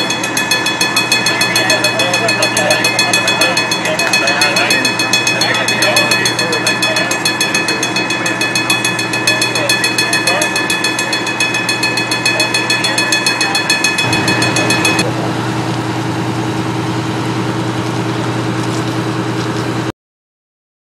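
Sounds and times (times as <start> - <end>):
bell ringing rapidly: 0.0 - 15.1
engine idling: 0.0 - 19.9.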